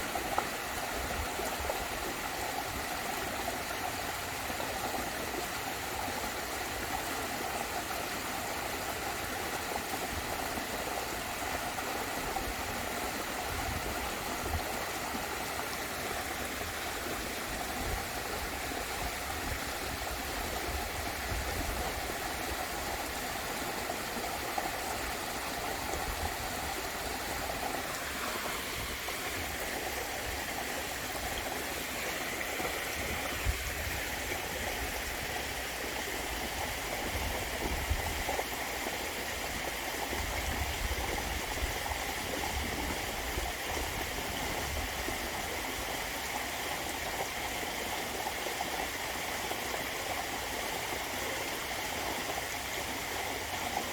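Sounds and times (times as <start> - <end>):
water falling in a waterfall: 0.0 - 53.9.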